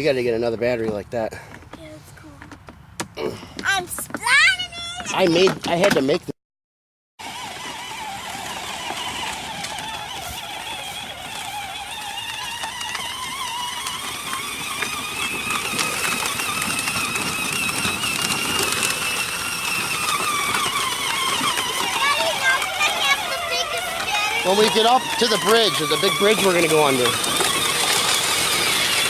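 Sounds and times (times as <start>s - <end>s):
toy truck electric motor whining: 7.2s - 29.0s.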